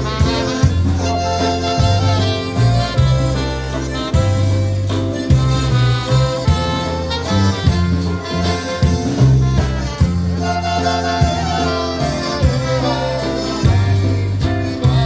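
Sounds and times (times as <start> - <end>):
polka band playing a waltz: 0.0 - 15.0.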